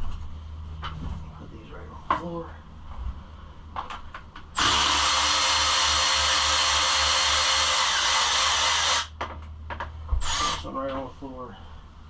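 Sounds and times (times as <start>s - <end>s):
power drill running: 4.6s - 9.2s, 10.2s - 10.7s.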